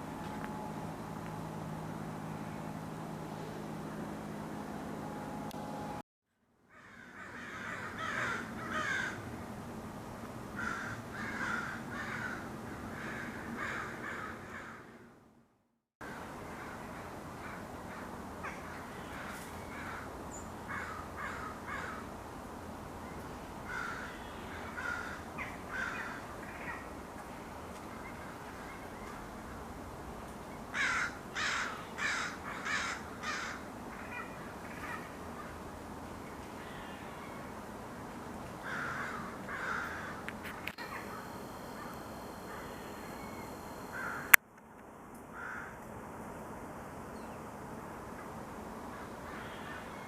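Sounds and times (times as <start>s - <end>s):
crows cawing: 6.7s - 9.2s, 10.6s - 15.0s, 17.5s - 20.1s, 20.7s - 22.1s, 23.7s - 26.8s, 30.8s - 35.6s, 38.6s - 44.4s, 45.4s - 45.8s, 49.0s - 50.0s
steady background hiss: 16.0s - 50.0s.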